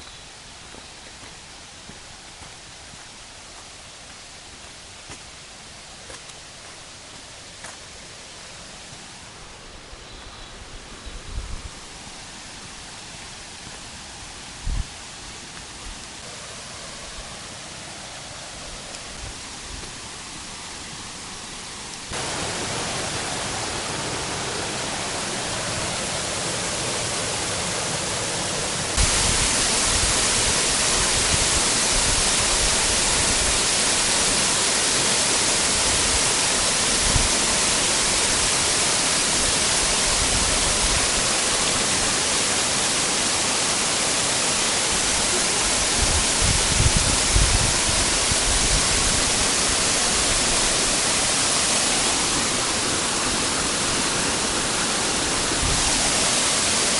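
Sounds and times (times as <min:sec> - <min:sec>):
waterfall rushing: 0:11.6 - 0:56.9.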